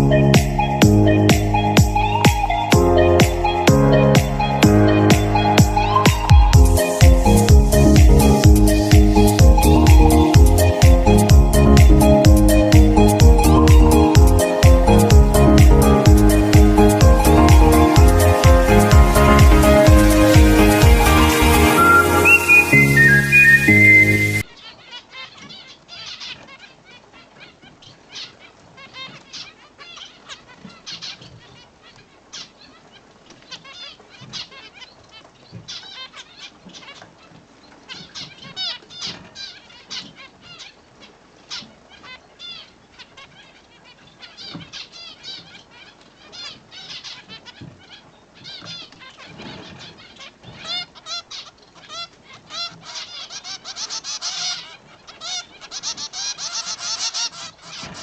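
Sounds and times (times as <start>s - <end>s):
finches chirping: 0.0s - 15.2s, 15.9s - 24.4s.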